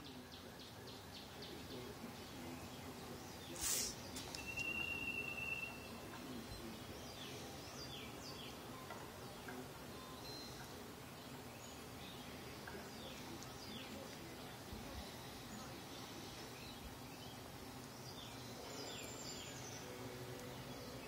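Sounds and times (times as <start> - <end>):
low background murmur: 0.0 - 21.0
songbirds singing: 0.0 - 21.0
brief loud hiss: 3.5 - 4.1.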